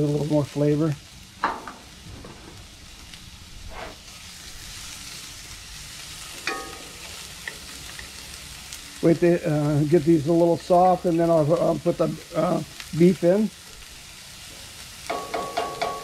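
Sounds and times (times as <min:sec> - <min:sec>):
vegetables sizzling in hot oil: 0:00.0 - 0:16.0
wooden spatula scraping pan: 0:03.7 - 0:04.0.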